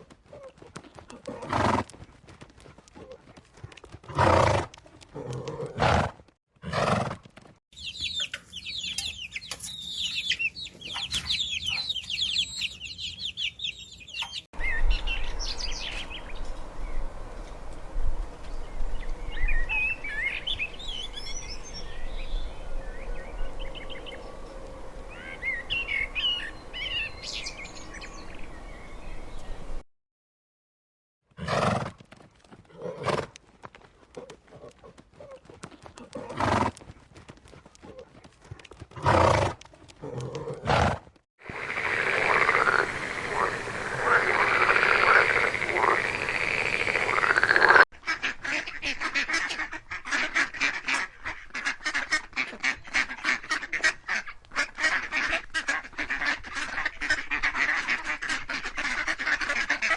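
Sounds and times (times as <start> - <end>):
birds chirping: 7.8 - 29.8, 41.4 - 53.4
low wind rumble: 14.6 - 29.8, 41.4 - 47.8.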